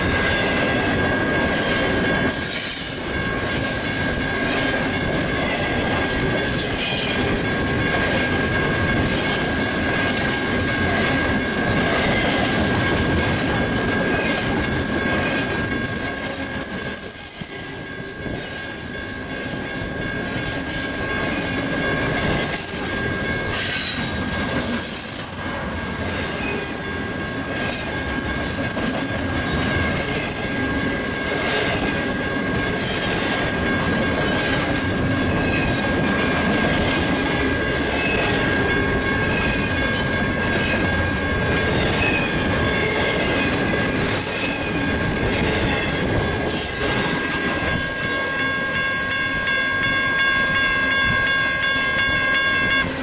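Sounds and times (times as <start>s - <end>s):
steel wheels rumbling on rails: 0.0s - 53.0s
high wheel squeals: 17.6s - 36.2s, 37.3s - 53.0s
electronic warning bell tone: 47.3s - 53.0s.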